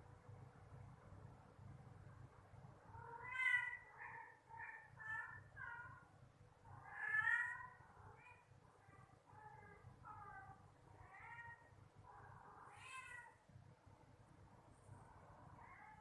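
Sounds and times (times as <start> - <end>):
cats meowing: 3.0 - 6.1, 6.7 - 11.7, 12.3 - 13.4.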